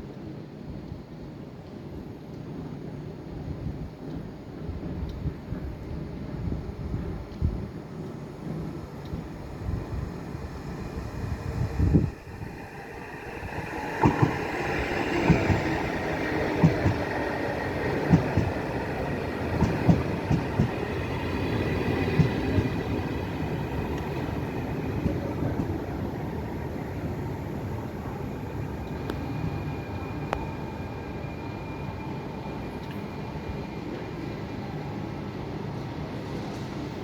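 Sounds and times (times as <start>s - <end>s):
train rumbling past: 2.6s - 37.0s.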